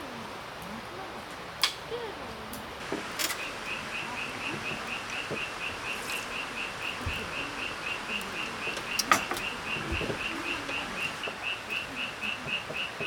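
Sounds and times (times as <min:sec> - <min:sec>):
cricket chirping: 0:02.8 - 0:13.0.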